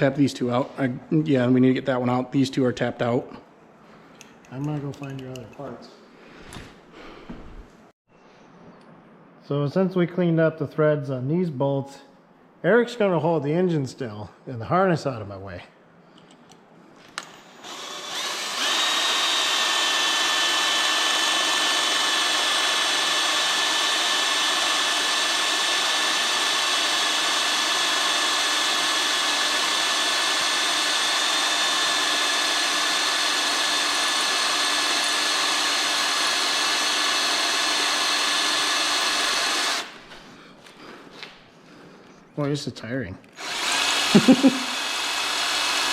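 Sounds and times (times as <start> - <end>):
power drill grinding: 17.2 - 40.0, 43.4 - 45.9.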